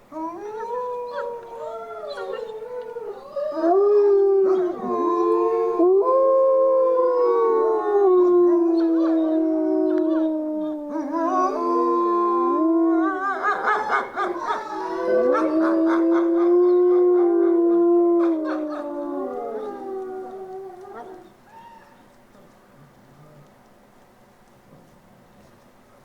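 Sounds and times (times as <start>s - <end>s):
wolves howling: 0.0s - 22.0s
wolves yipping: 0.4s - 3.6s, 13.0s - 16.2s.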